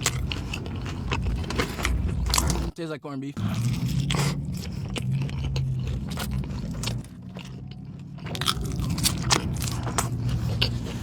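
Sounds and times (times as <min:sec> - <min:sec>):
chewing crunchy food: 0:00.0 - 0:02.8, 0:03.4 - 0:11.0
low steady hum: 0:03.4 - 0:11.0.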